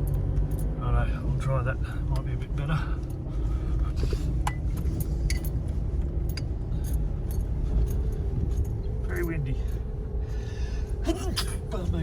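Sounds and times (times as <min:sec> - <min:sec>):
vehicle rumbling on dirt track: 0:00.0 - 0:12.0
rattles and clinks: 0:04.4 - 0:09.9.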